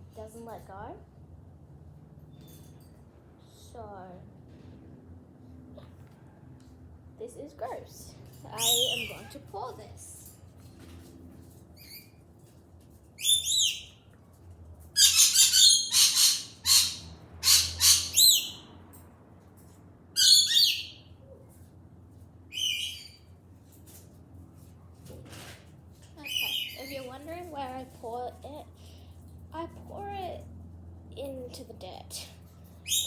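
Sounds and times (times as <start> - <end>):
bird chirps and screeches: 8.6 - 9.4, 11.8 - 12.2, 13.2 - 14.0, 15.0 - 18.7, 20.2 - 21.1, 22.5 - 23.4, 26.2 - 27.1.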